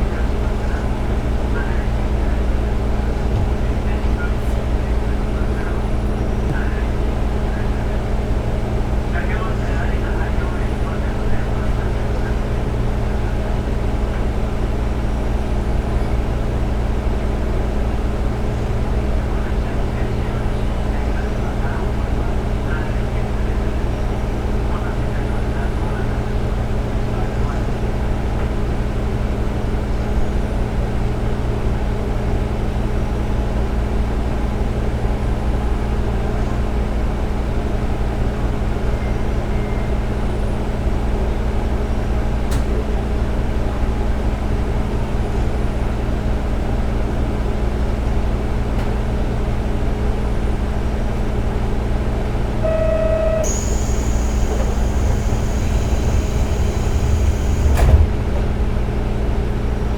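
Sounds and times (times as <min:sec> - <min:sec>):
railcar diesel engine running: 0:00.0 - 0:59.9
short beep: 0:52.6 - 0:57.8
high whine: 0:52.6 - 0:58.8.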